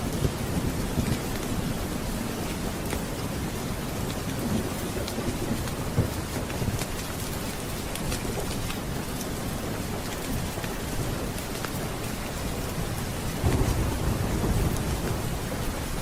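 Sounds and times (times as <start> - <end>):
steady rain: 0.0 - 16.0
thunder rumbling: 13.0 - 16.0.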